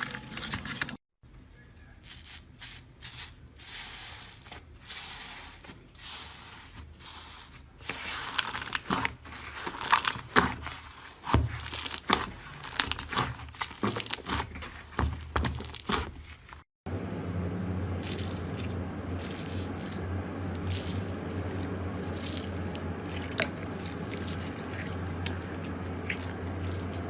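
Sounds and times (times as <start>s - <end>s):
slime crackling and tearing: 7.8s - 16.6s, 20.6s - 27.0s.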